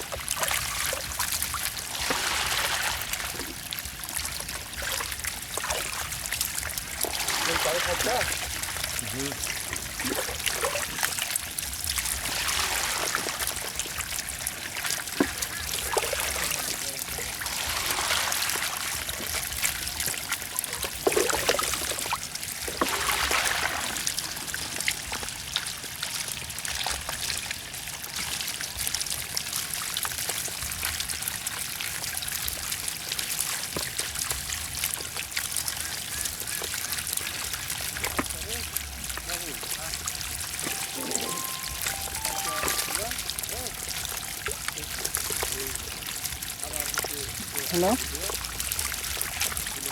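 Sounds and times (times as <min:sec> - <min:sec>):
water running and trickling: 0:00.0 - 0:49.9.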